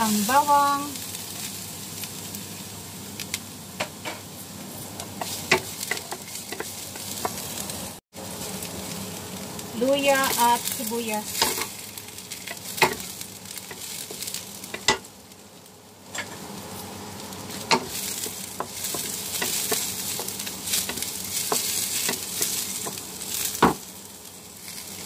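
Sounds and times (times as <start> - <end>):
food sizzling in hot oil: 0.0 - 25.0
spatula stirring in wok: 5.1 - 9.0, 17.4 - 25.0.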